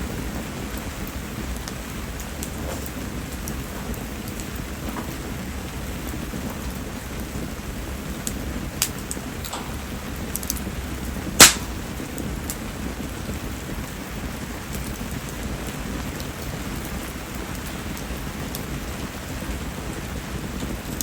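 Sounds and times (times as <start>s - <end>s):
campfire ticks: 0.0s - 21.0s
steady rain: 0.0s - 21.0s
loud sharp wood snap: 11.4s - 11.8s.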